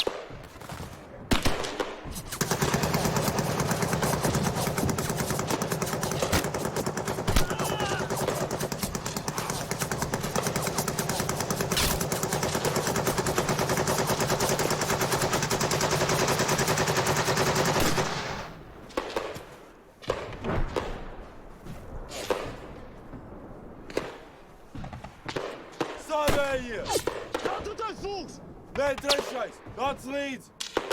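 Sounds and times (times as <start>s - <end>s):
rapid machine-gun fire: 1.4s - 18.6s.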